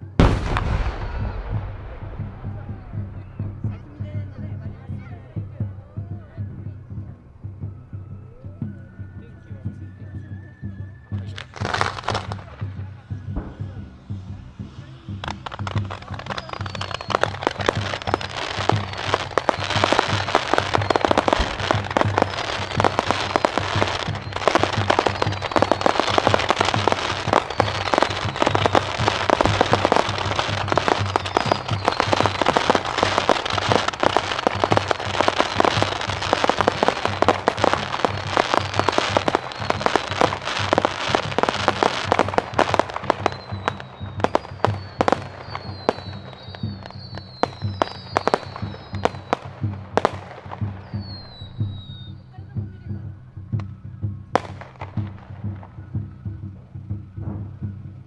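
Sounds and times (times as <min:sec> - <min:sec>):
firework cracks and pops: 0:00.0 - 0:04.0, 0:11.2 - 0:12.7, 0:13.3 - 0:51.7
firework whistles: 0:00.0 - 0:04.2, 0:07.6 - 0:52.3.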